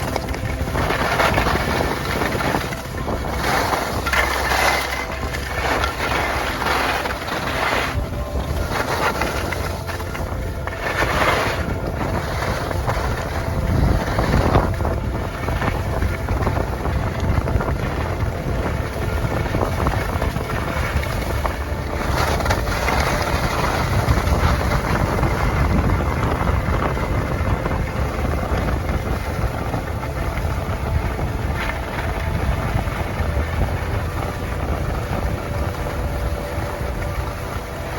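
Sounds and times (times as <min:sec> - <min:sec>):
wind buffeting microphone: 0:00.0 - 0:37.9.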